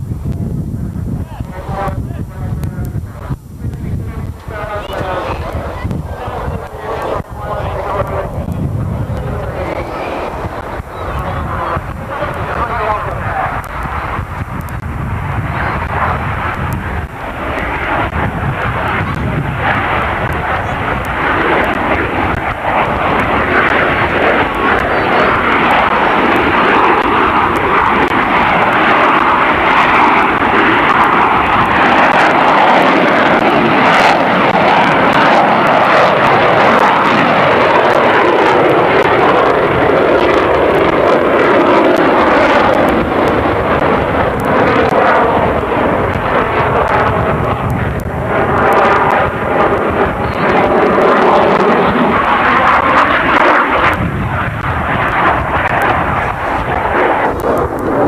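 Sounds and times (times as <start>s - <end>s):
airplane flying by: 0.0s - 58.0s.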